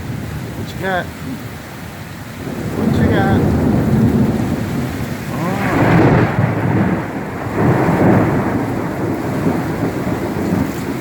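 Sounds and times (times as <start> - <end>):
heavy rain: 0.0 - 11.0
rolling thunder: 2.4 - 11.0.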